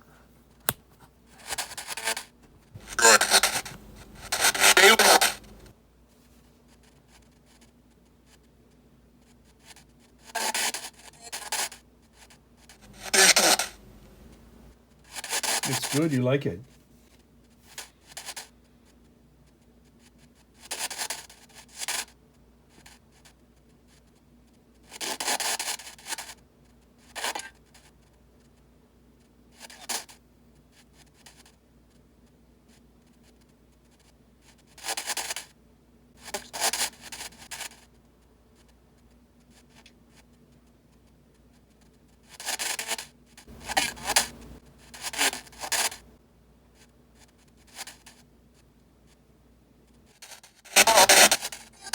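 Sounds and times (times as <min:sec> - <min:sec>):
faint steady hum: 0:02.4 - 0:06.0, 0:12.8 - 0:14.9, 0:43.5 - 0:46.4
rasping bursts of radio static: 0:02.8 - 0:05.7, 0:12.8 - 0:14.7, 0:50.7 - 0:51.9.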